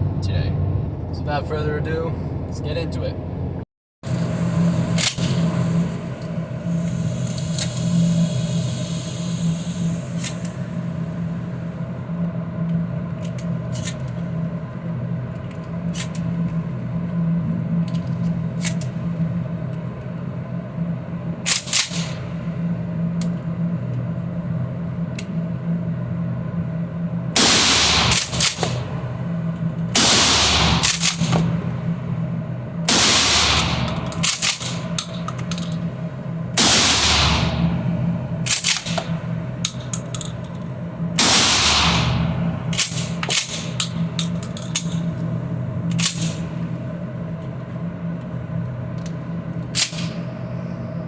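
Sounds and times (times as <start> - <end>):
steady low hum: 0.0 - 51.0
shotgun blasts: 27.4 - 29.0, 30.0 - 31.6, 32.9 - 35.0, 36.6 - 39.2, 41.2 - 43.8.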